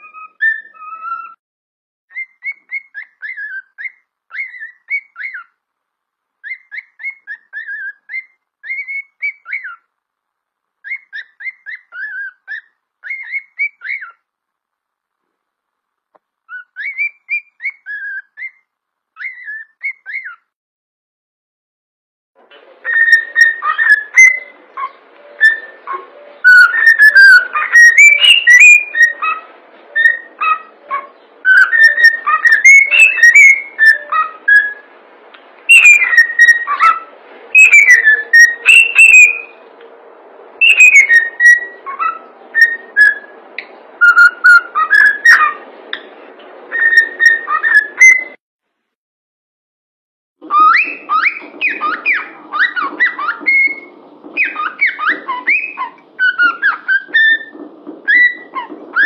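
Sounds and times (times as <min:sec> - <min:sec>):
cockatiel whistling: 0:00.0 - 0:01.4, 0:02.1 - 0:05.5, 0:06.4 - 0:09.9, 0:10.8 - 0:14.2, 0:16.5 - 0:18.6, 0:19.2 - 0:20.4, 0:22.8 - 0:34.9, 0:35.7 - 0:39.6, 0:40.6 - 0:43.4, 0:44.0 - 0:46.0, 0:46.7 - 0:48.4, 0:50.5 - 0:59.0.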